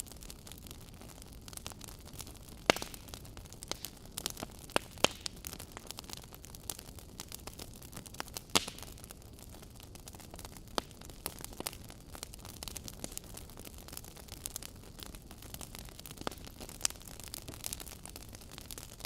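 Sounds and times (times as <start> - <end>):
fireplace crackling: 0.0 - 19.0
wood popping and snapping: 2.7 - 3.1, 8.6 - 8.8.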